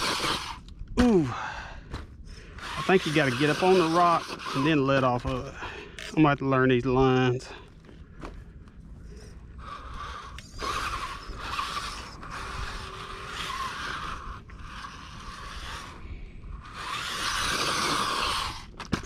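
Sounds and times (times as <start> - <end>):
electric motor whirring: 0.0 - 1.2, 1.9 - 6.3, 9.0 - 19.0.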